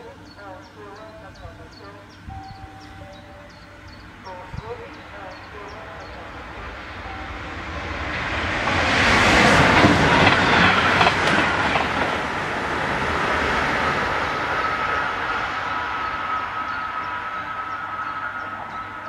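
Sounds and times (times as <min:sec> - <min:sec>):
thin steady whine: 0:00.0 - 0:08.4
train passing at speed: 0:00.0 - 0:19.0.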